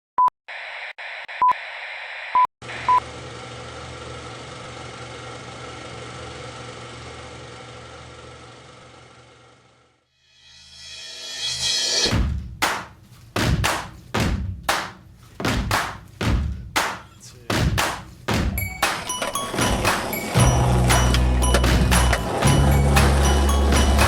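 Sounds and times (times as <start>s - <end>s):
low hum: 19.6s - 24.0s.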